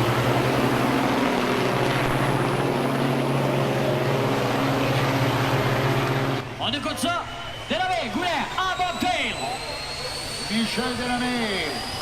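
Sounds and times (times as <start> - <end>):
truck diesel engine droning: 0.0 - 6.6.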